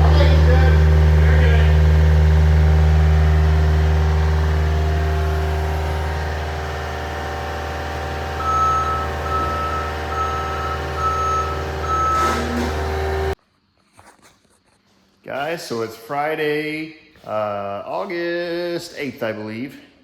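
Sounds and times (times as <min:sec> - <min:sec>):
heavy vehicle engine running: 0:00.0 - 0:13.4
reversing alarm beeping: 0:07.5 - 0:13.4.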